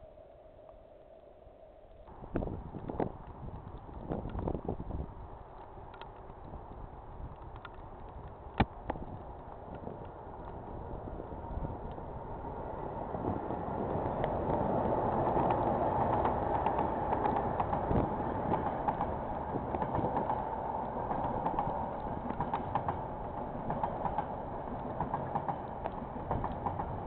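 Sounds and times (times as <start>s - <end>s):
wheels clacking over rail joints: 2.8s - 27.0s
diesel locomotive rumble: 9.2s - 27.0s.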